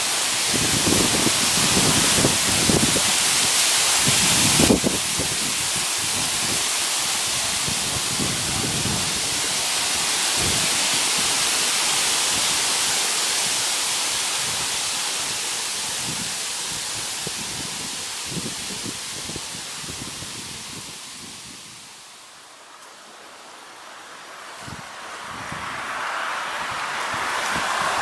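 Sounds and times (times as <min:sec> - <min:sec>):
wind rushing through trees: 0:00.0 - 0:28.0
wind buffeting microphone: 0:00.4 - 0:11.5, 0:24.6 - 0:28.0.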